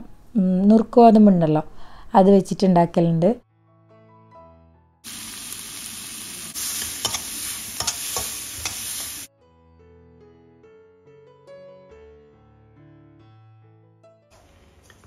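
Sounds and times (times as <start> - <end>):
vegetables sizzling in wok: 5.1 - 9.3
spatula scraping wok: 6.5 - 9.3
soft piano music: 7.0 - 14.8.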